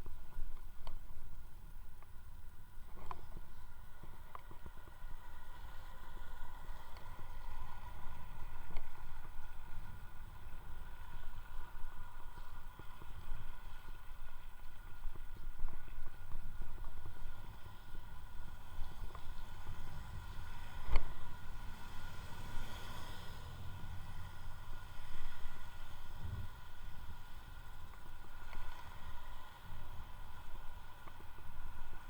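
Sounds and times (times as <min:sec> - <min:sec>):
faint whining tones: 0:00.0 - 0:32.0
wind and road buffeting: 0:16.1 - 0:32.0.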